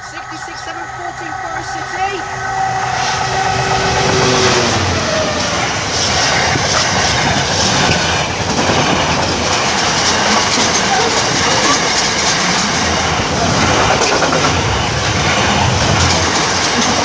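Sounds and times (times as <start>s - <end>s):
diesel locomotive passing: 0.0s - 17.0s
freight wagons rolling on rails: 0.0s - 17.0s
clickety-clack of train wheels: 4.0s - 17.0s.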